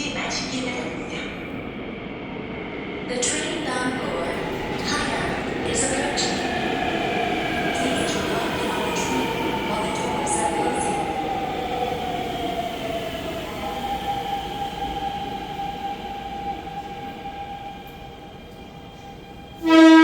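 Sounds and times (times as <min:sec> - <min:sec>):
loud train horn: 0:19.6 - 0:20.0.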